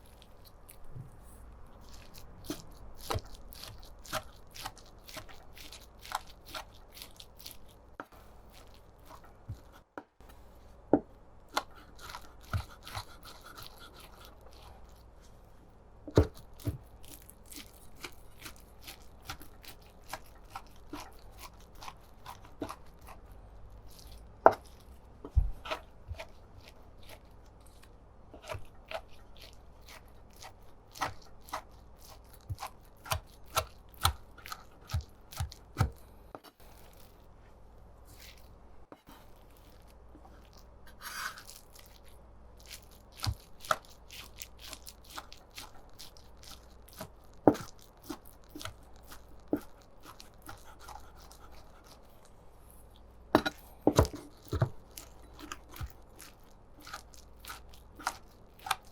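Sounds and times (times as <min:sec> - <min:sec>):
knife chopping on cutting board: 0:10.9 - 0:14.3, 0:16.1 - 0:16.9, 0:17.5 - 0:23.2, 0:29.8 - 0:36.0, 0:47.0 - 0:48.8, 0:53.4 - 0:56.0.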